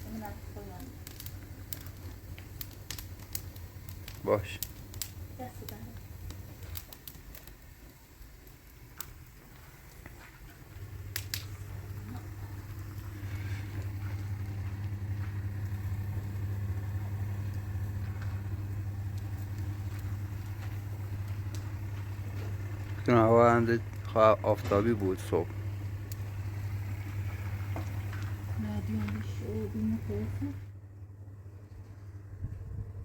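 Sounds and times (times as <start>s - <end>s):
washing machine motor humming: 10.6s - 31.6s.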